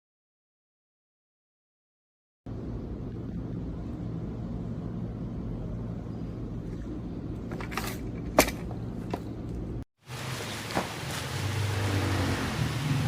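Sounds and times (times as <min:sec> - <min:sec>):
steady low hum: 0:02.5 - 0:09.9.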